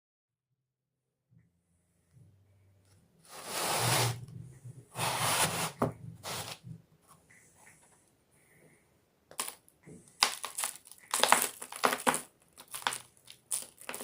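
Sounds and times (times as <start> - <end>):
chalk rasping by hand: 3.3 - 4.2.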